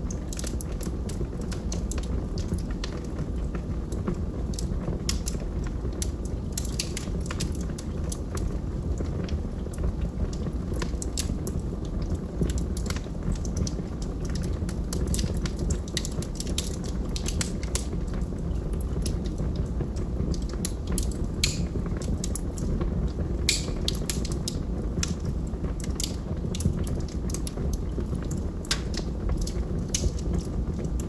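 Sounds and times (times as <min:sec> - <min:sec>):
fire pops: 0:00.0 - 0:31.0
low rumble of flames: 0:00.0 - 0:31.0
wood fire crackling: 0:00.0 - 0:31.0.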